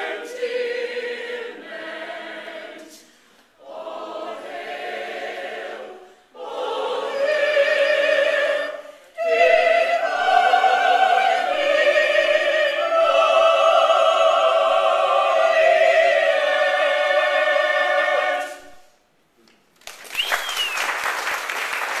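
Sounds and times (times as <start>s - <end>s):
choir singing held notes: 0.0s - 19.0s
applause: 19.8s - 22.0s.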